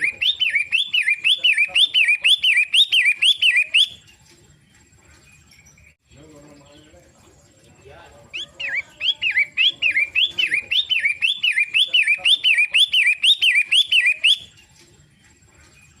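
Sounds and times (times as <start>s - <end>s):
bird singing whistled notes: 0.0s - 4.1s, 8.3s - 14.6s.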